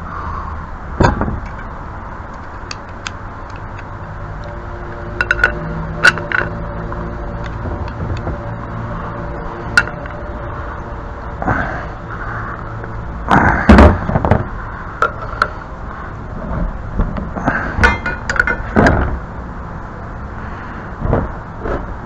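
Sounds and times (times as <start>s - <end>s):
brass pipe fittings clinking: 5.1s - 6.6s, 9.7s - 10.2s, 17.8s - 18.8s.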